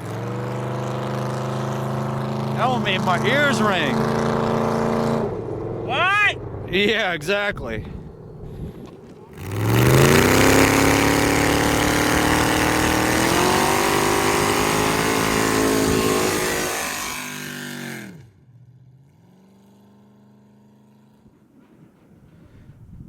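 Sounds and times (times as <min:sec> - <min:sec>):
truck engine revving: 0:00.0 - 0:21.2
spinning tyres hissing: 0:08.0 - 0:18.2.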